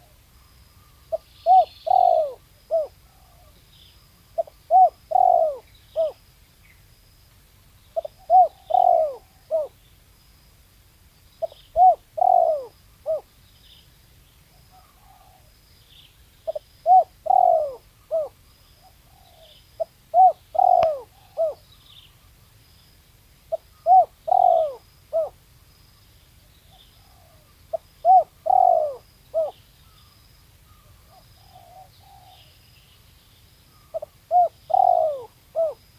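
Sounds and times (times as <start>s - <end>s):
dove cooing: 0.8s - 3.6s, 4.3s - 6.2s, 8.0s - 9.8s, 11.4s - 13.3s, 14.7s - 15.5s, 16.4s - 21.7s, 23.5s - 25.4s, 26.7s - 30.0s, 30.7s - 32.5s, 33.7s - 35.9s.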